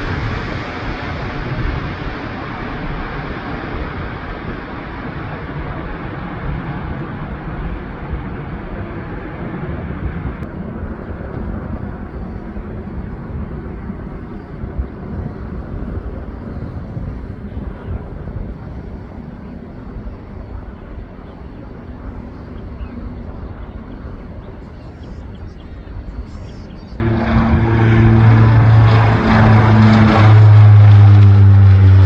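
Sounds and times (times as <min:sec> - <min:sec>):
jet engines roaring: 0:00.0 - 0:17.6, 0:27.0 - 0:32.0.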